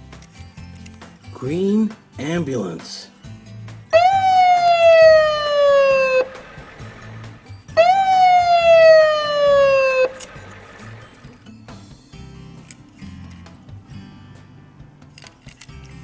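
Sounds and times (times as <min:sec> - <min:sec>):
ambulance siren wailing: 0:03.9 - 0:11.2.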